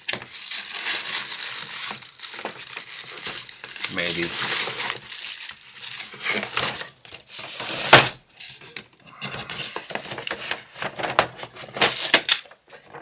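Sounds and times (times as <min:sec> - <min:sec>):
packaging rustling: 0:00.0 - 0:07.9.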